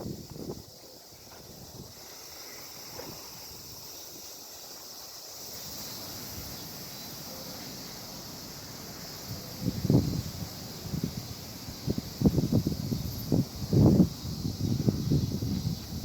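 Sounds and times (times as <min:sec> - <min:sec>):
wind rumbling on microphone: 0:00.0 - 0:02.1, 0:09.1 - 0:16.0
steady high hiss: 0:00.0 - 0:16.0.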